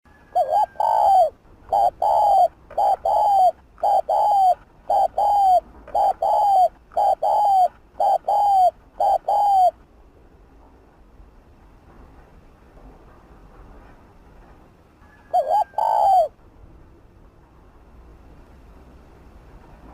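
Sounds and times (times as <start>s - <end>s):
dove cooing: 0.1s - 9.8s, 15.3s - 16.3s.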